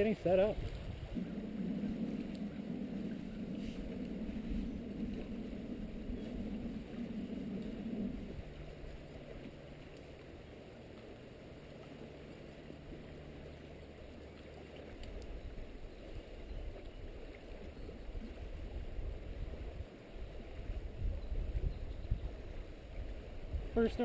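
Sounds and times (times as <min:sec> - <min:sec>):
low rumble: 0:00.5 - 0:16.8.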